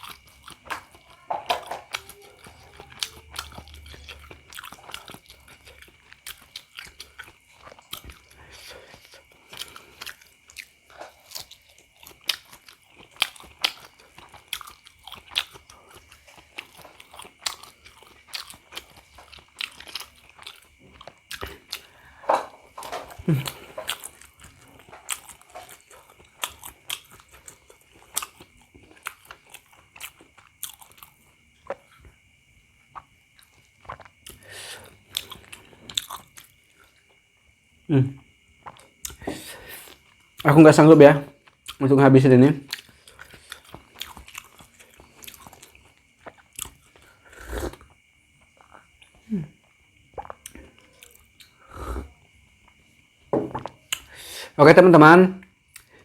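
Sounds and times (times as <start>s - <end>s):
wet chewing mouth clicks: 32.9s - 36.6s, 42.7s - 52.1s.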